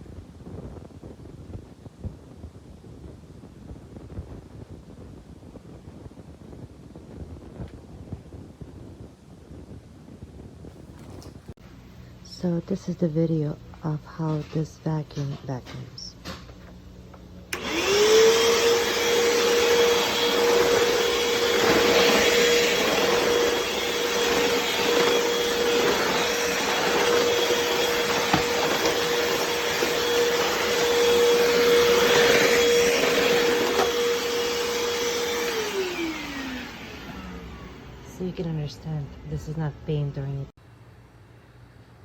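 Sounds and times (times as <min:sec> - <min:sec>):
vacuum cleaner motor whining: 0:17.5 - 0:40.5.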